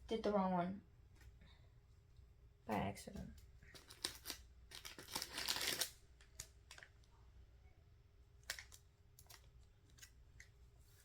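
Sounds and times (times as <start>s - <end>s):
small items clicking and tapping: 3.4s - 6.9s
packaging crinkling: 3.6s - 7.1s, 8.4s - 10.5s.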